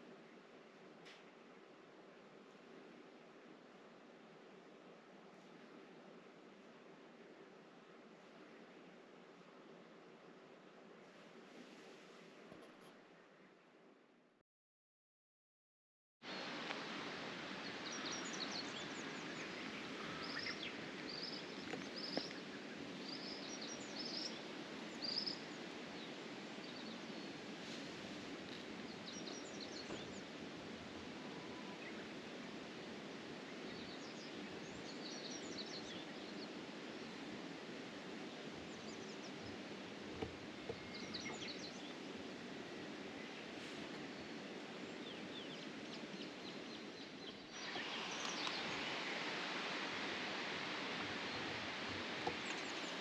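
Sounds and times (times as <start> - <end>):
outdoor background noise: 0.0 - 14.4, 16.2 - 53.0
small birds chirping: 17.6 - 27.4, 28.5 - 30.4, 33.5 - 37.3, 40.2 - 42.4, 43.1 - 53.0.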